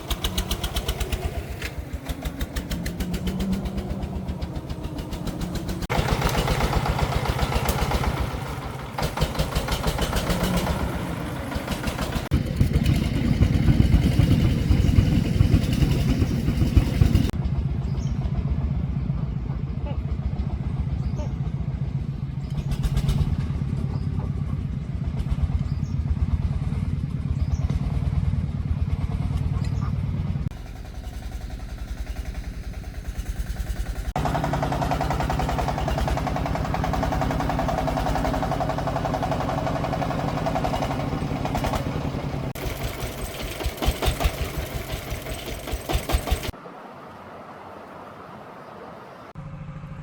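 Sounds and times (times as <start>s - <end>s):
diesel engine chugging: 0.0s - 46.6s, 47.9s - 50.0s.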